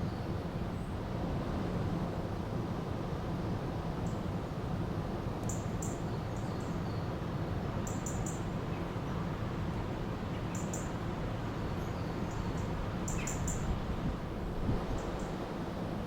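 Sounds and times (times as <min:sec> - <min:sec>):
small birds chirping: 0:10.3 - 0:13.7.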